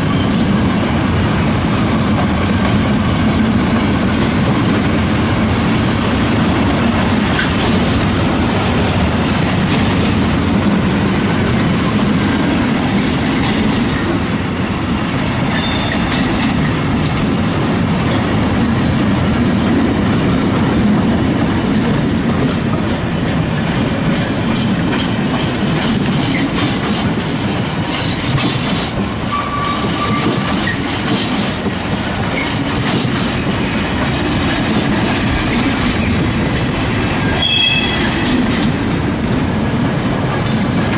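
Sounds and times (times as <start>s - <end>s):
freight train wheels rumbling: 0.0s - 40.9s
wheel squeals: 9.0s - 9.5s, 12.7s - 13.6s, 15.4s - 16.3s, 29.3s - 30.9s, 37.3s - 38.3s
clicking over rail joints: 23.6s - 37.1s.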